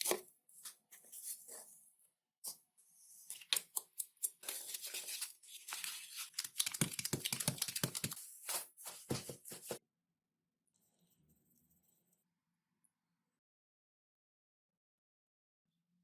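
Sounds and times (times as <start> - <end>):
clicks and taps: 6.5 - 8.2.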